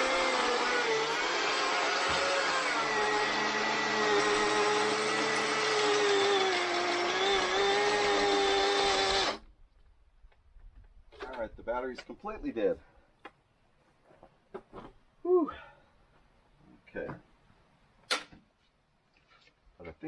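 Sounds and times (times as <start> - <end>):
battery chainsaw running: 0.0 - 9.4.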